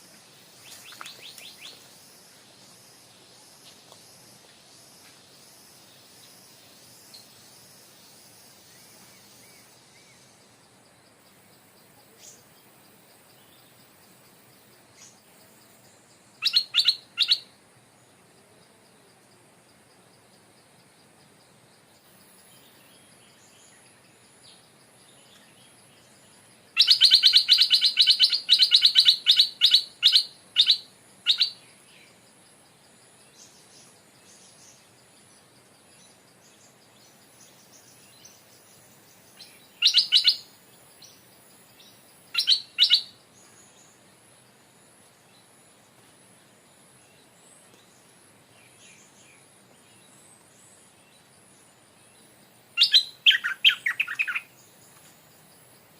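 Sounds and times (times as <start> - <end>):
bird chattering call: 26.8 - 31.6, 39.8 - 40.4, 42.4 - 43.1, 52.8 - 54.5.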